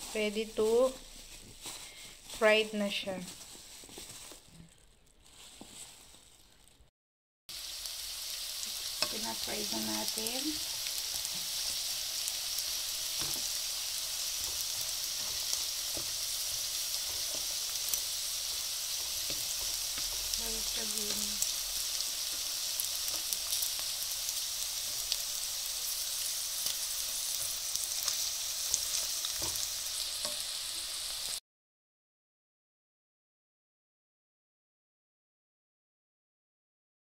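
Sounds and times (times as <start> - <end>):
food deep-frying in oil: 0.0 - 3.4, 7.5 - 31.4.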